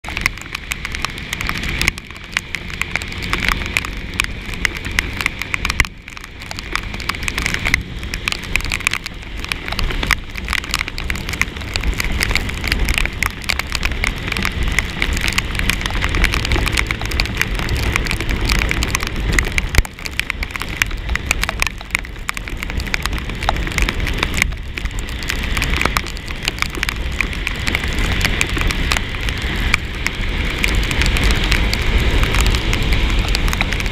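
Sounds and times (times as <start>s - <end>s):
raindrops spattering on microphone: 0.0s - 33.9s.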